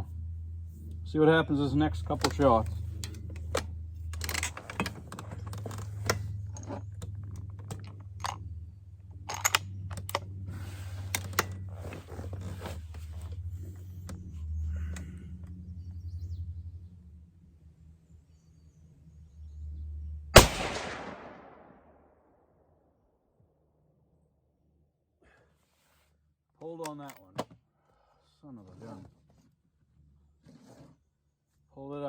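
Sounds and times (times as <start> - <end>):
low hum: 0.0 - 22.4
rifle clicks and rattles: 2.1 - 8.5, 9.1 - 10.4.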